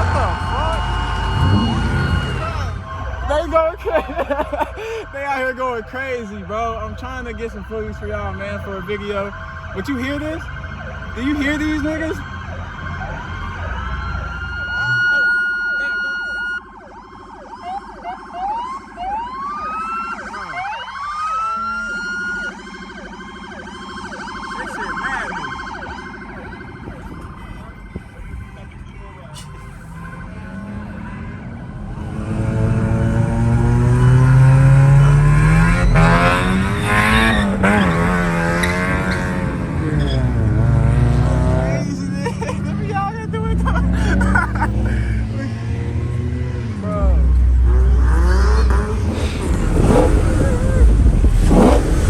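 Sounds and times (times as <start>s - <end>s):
car engine revving hard: 0.0s - 13.3s, 30.2s - 42.4s, 43.5s - 52.0s
police sirens wailing: 0.0s - 52.0s
police sirens yelping: 0.0s - 52.0s.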